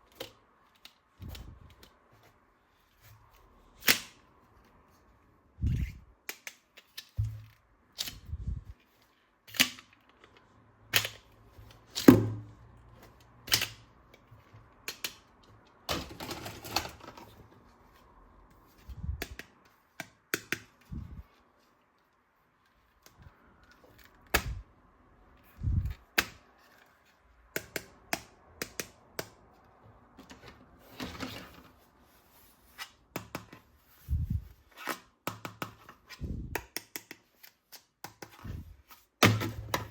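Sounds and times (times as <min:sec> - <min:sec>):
plastic toy parts clicking: 0:06.2 - 0:08.4, 0:14.8 - 0:15.3
plastic pieces set down with thud: 0:15.9 - 0:17.3
plastic rattling scrape: 0:15.9 - 0:17.4.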